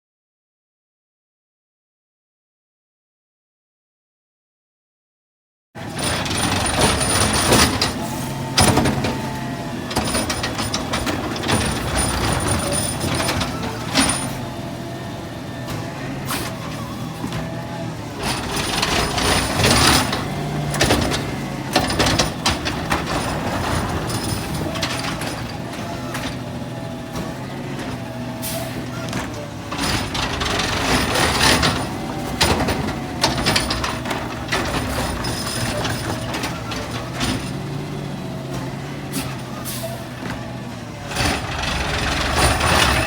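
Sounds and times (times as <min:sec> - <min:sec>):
diesel engine humming: 0:06.0 - 0:43.0
loading gear clanking: 0:18.2 - 0:26.4, 0:27.1 - 0:37.8, 0:41.2 - 0:43.0
air brake hisses: 0:28.4 - 0:29.0, 0:39.1 - 0:40.1.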